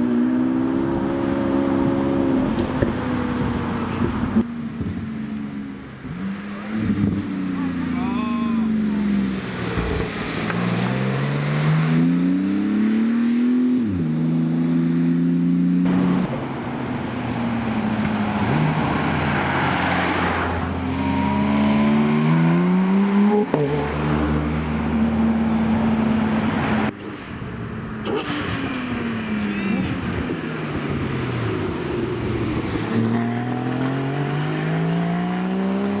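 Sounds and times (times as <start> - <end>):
road noise: 0.0 - 36.0
car engine accelerating hard: 6.0 - 26.9.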